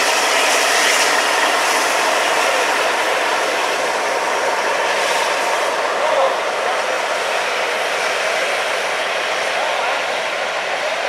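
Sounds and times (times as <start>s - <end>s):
train wheels rushing on rails: 0.0s - 11.0s.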